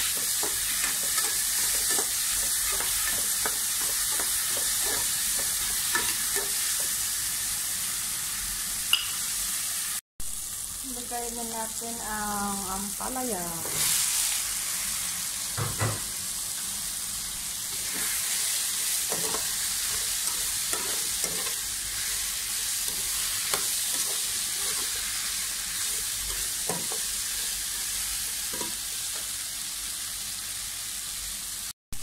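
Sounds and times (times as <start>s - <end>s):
metal spatula scraping a pan: 0.0s - 6.9s, 17.7s - 27.8s
vegetables sizzling in oil: 0.0s - 32.0s.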